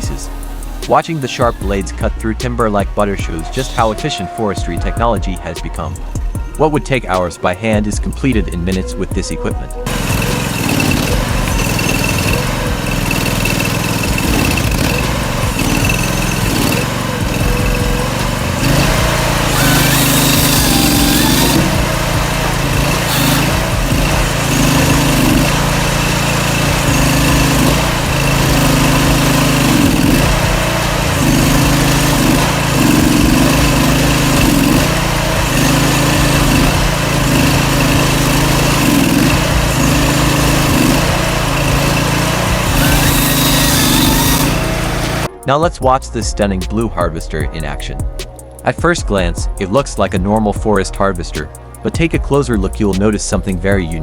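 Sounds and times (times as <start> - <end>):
forestry cutting machine engine: 0.0 - 4.6, 9.8 - 45.3.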